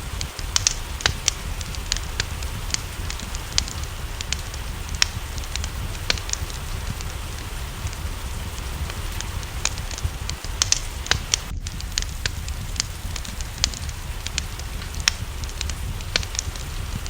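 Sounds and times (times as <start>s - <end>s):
low rumble: 0.0s - 17.0s
rain hiss: 0.0s - 17.0s
wood fire crackling: 0.0s - 17.0s.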